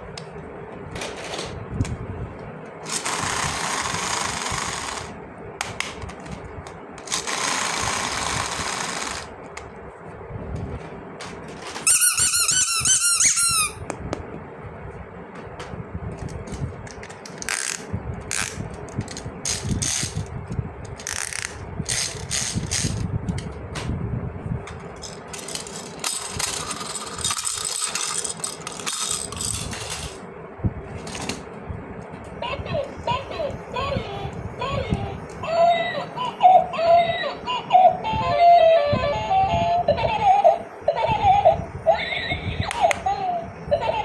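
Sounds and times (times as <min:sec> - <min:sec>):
plastic toy pieces rattling: 0:02.9 - 0:05.1, 0:07.1 - 0:09.3, 0:21.0 - 0:23.0, 0:25.0 - 0:30.2.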